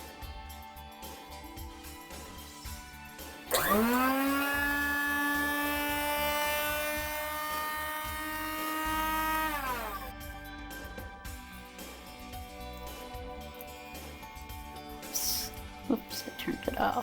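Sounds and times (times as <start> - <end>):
coffee grinder motor whining: 2.4 - 14.6.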